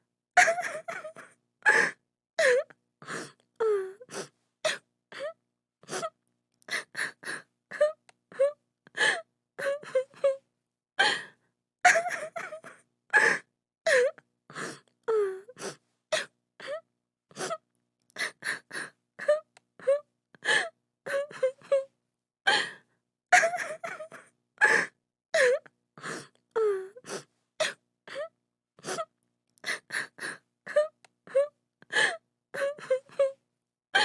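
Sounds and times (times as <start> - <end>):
woman sobbing: 0.4 - 2.6, 11.9 - 14.1, 23.3 - 25.6, 30.7 - 33.4.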